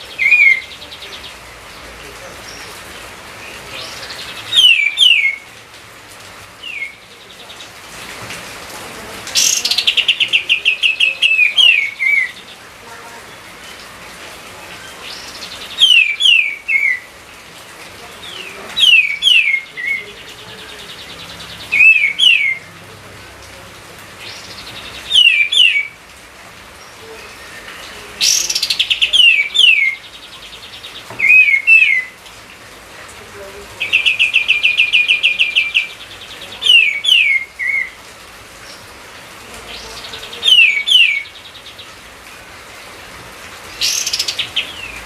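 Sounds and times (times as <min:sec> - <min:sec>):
songbird singing: 0:00.0 - 0:45.0.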